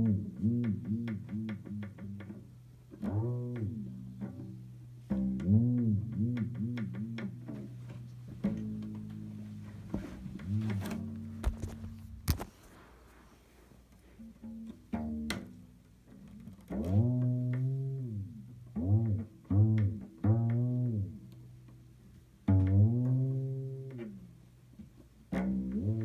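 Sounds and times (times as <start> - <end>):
cello sliding low notes: 0.0 - 12.2.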